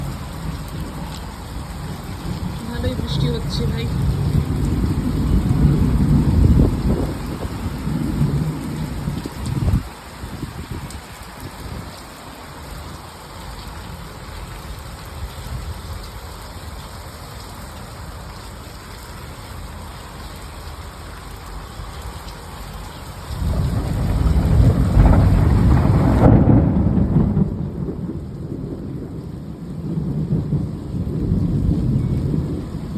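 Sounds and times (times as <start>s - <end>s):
heavy rain falling: 0.0s - 32.9s
deep rumble of thunder: 1.8s - 12.0s, 23.3s - 32.9s.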